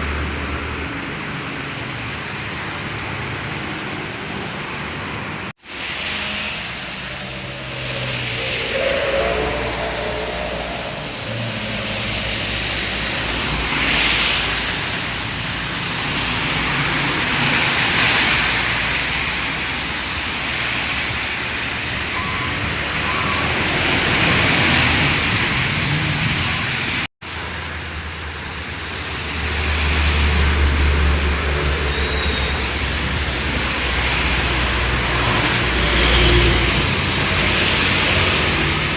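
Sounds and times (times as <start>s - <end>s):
tyre hiss on wet road: 5.6s - 9.2s, 9.9s - 38.9s
low engine drone: 5.6s - 16.8s.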